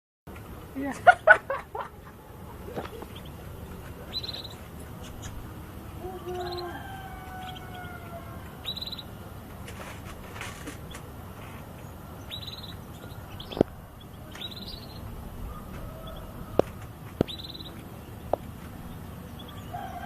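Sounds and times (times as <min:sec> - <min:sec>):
faint background noise: 0:00.3 - 0:20.0
canary chirping and trilling: 0:02.5 - 0:09.2, 0:11.7 - 0:20.0.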